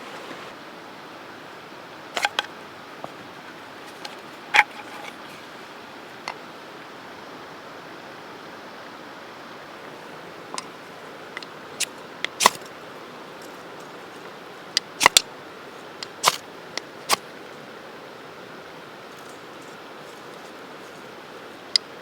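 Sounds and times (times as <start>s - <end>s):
steady fire hiss: 0.0s - 22.0s
campfire crackling and popping: 14.8s - 15.3s, 16.0s - 16.4s.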